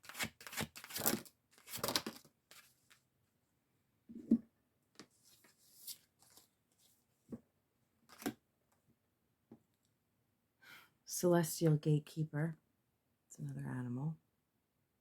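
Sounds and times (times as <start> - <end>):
cards rustling and snapping: 0.0 - 3.0.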